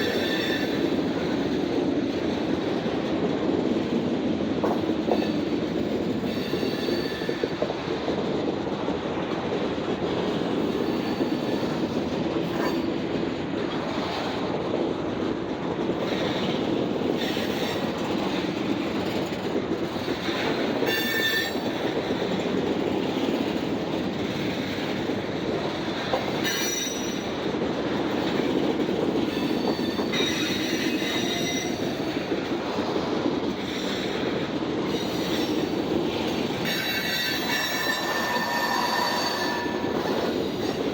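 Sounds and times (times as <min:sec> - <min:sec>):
freight train cars rolling: 0:00.0 - 0:40.9
high-pitched wheel squeals: 0:26.4 - 0:27.2, 0:29.3 - 0:31.9, 0:36.7 - 0:40.8.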